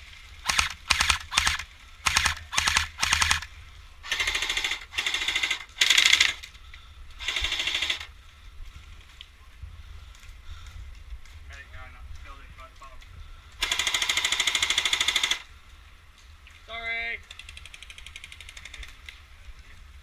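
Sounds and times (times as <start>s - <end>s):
airsoft guns firing full auto: 0.4s - 6.4s, 7.2s - 8.1s, 13.6s - 15.5s.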